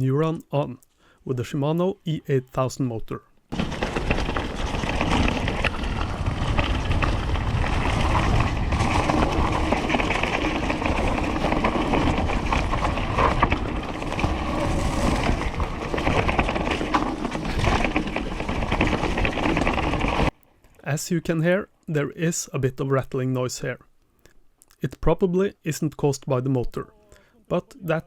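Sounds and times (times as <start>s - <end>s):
clicking rattle from bike: 3.5s - 20.4s
tyres rolling over ground: 3.5s - 20.4s.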